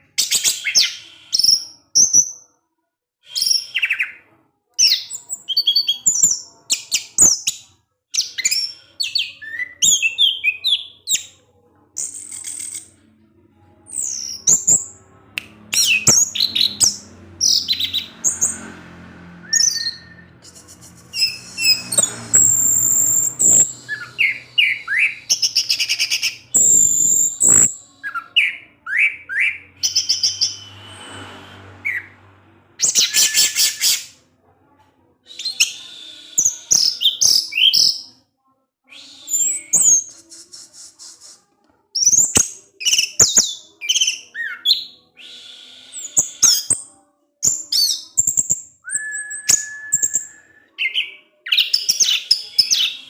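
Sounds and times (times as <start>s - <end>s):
thrush singing: 12.1s - 34.2s.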